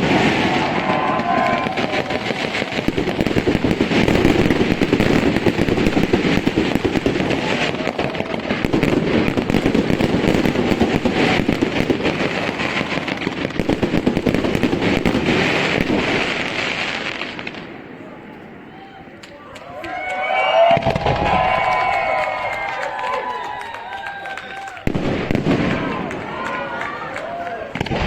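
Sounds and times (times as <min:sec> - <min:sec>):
fireworks rapid bangs: 0:00.0 - 0:17.8, 0:20.7 - 0:22.1, 0:24.8 - 0:28.0.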